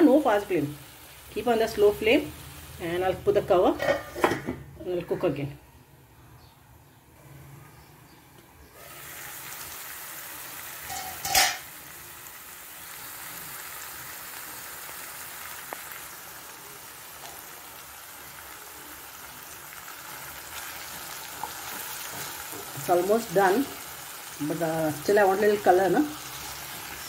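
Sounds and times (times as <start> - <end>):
chicken sizzling in oil: 0.0 - 4.2, 8.7 - 27.0
metal clank: 10.9 - 11.6.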